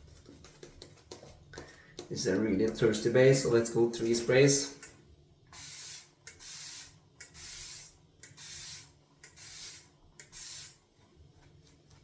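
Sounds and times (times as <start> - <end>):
spray bottle hissing: 5.6 - 10.8.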